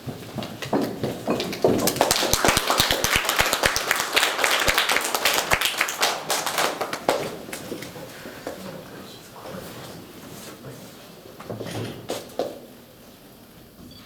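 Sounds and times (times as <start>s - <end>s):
audience applauding: 1.4s - 7.9s.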